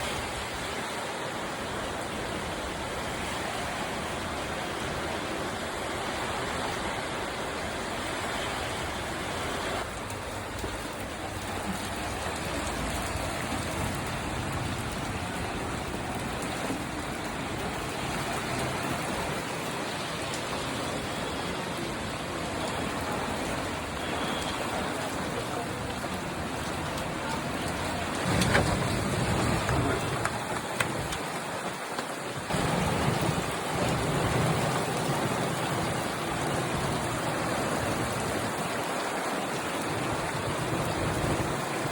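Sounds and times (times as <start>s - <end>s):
rain falling steadily: 0.0s - 41.9s.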